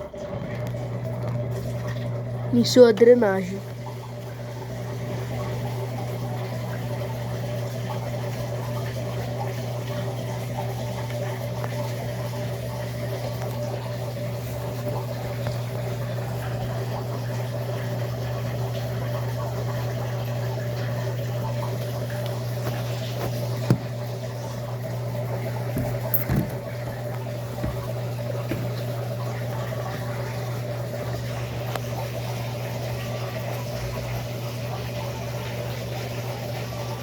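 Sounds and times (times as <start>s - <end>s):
drain pump humming: 0.0s - 37.0s
water gurgling: 0.0s - 37.0s.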